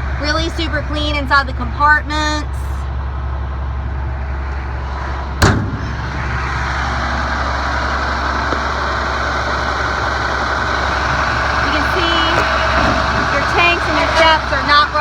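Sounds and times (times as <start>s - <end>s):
diesel truck engine idling: 0.0s - 15.0s
sharp metallic clunk: 5.3s - 8.7s.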